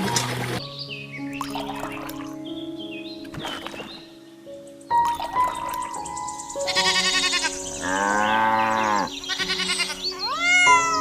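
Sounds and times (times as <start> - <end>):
background music: 0.0 - 11.0
animal bleating: 6.6 - 11.0.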